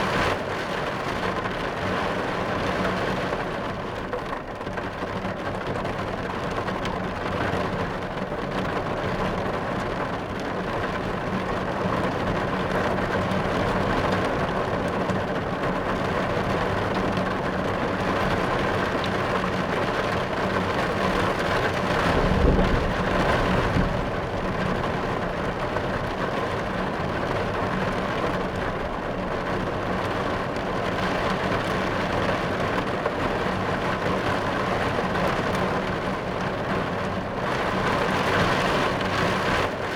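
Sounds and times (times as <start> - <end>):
rain on car roof: 0.0 - 39.9
thunder rumble: 20.9 - 30.1.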